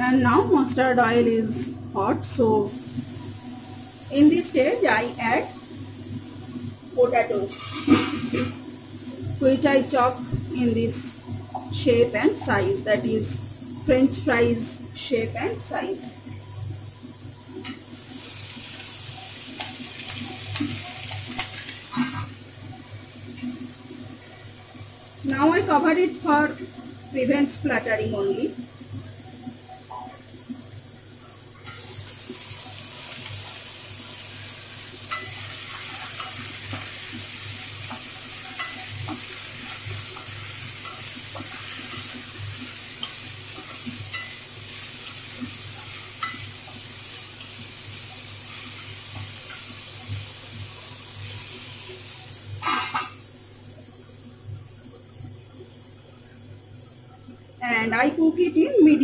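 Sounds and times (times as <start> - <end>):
potatoes sizzling in oil: 0.0 - 59.0
metal lid clattering onto pan: 52.6 - 53.2.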